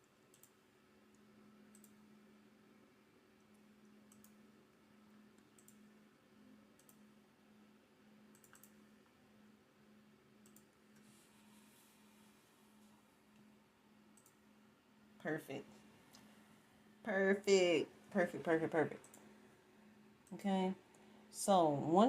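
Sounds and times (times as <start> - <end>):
computer mouse clicks: 0.0 - 2.1, 3.4 - 4.4, 5.4 - 5.9, 6.8 - 7.1, 8.3 - 8.9, 10.4 - 11.1, 14.2 - 14.4, 19.0 - 19.3
low steady hum: 0.0 - 22.0.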